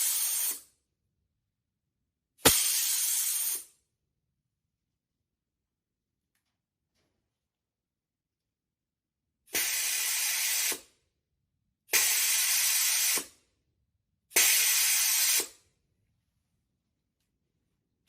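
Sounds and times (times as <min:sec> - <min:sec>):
compressed air hissing: 0:00.0 - 0:00.7, 0:02.4 - 0:03.8, 0:09.5 - 0:10.9, 0:11.9 - 0:13.4, 0:14.3 - 0:15.6.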